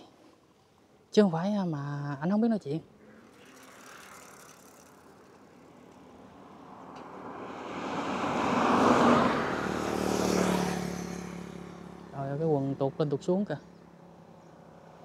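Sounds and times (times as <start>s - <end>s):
vehicle passing by: 3.0s - 15.0s.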